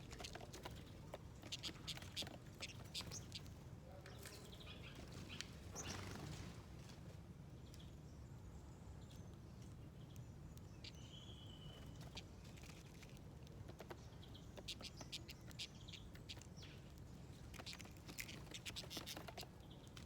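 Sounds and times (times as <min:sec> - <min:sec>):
beaks pecking at seeds: 0:00.0 - 0:03.5, 0:09.3 - 0:20.0
bird chirp: 0:00.1 - 0:03.5, 0:09.0 - 0:12.8, 0:13.8 - 0:20.0.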